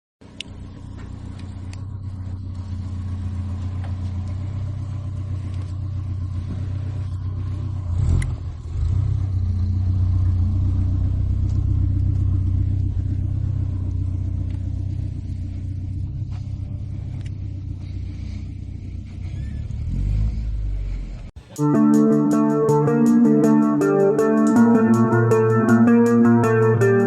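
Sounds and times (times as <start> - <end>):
car engine running steadily: 0.2 - 21.4.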